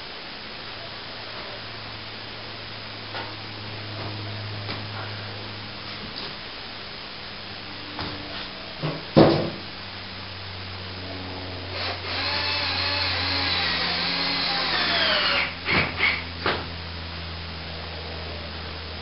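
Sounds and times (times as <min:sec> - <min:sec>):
cordless drill driving a screw: 0:11.7 - 0:16.2.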